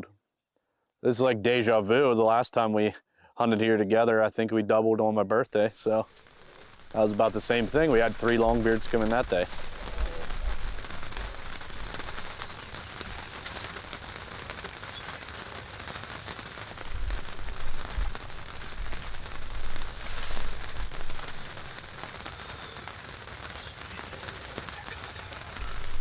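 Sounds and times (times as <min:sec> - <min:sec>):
rain pattering: 0:05.7 - 0:26.0
low rumbling: 0:05.8 - 0:22.3.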